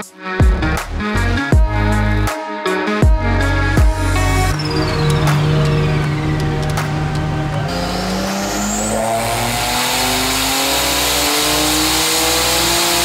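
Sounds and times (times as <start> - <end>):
car engine revving at full throttle: 3.8 - 13.0.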